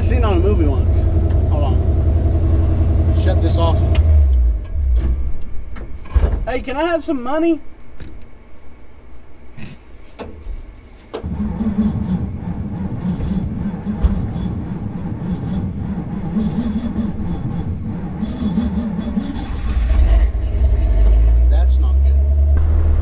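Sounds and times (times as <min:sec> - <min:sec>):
truck engine running: 0:00.0 - 0:06.1, 0:10.4 - 0:23.0
ignition clicks: 0:10.2 - 0:10.5.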